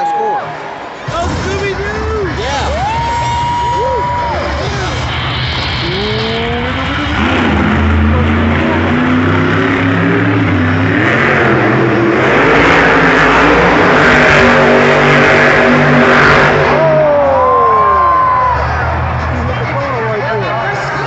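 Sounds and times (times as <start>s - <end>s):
truck engine revving hard: 3.4s - 19.8s.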